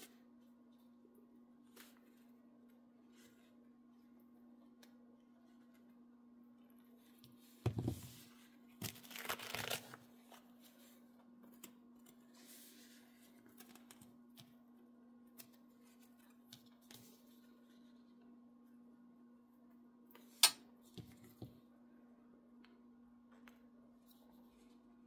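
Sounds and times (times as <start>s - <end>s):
material tearing and rustling: 8.8s - 10.0s.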